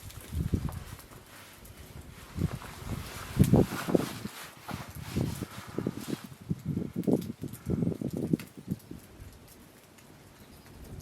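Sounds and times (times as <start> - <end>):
rustling: 0.0 - 7.6.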